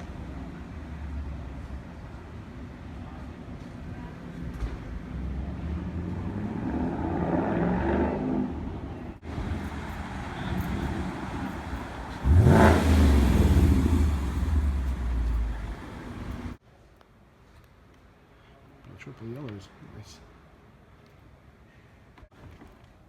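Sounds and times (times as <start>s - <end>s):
car engine revving: 5.1s - 16.6s.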